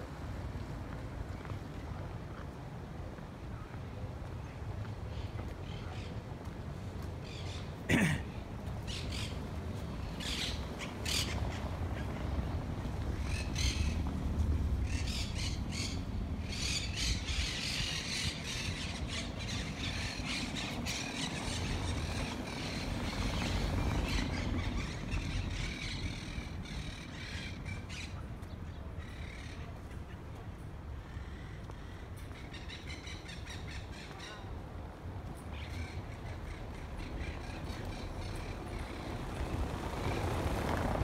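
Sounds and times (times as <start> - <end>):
birds calling harshly: 7.2 - 30.3, 31.1 - 34.6, 35.5 - 39.2.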